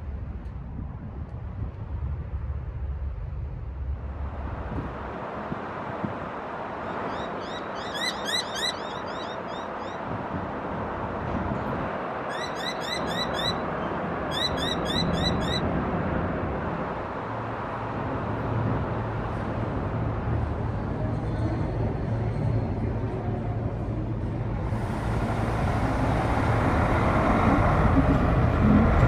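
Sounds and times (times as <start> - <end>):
deep engine hum: 0.0 - 9.8, 13.2 - 29.0
traffic noise: 0.0 - 29.0
bird calling short rising notes: 6.8 - 10.0, 12.3 - 15.6.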